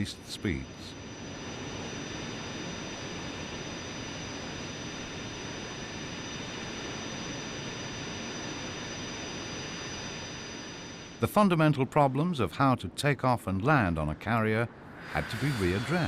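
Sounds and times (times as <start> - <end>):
jet engine running: 0.0 - 11.3, 14.2 - 16.0
high-pitched whining tones: 14.7 - 16.0.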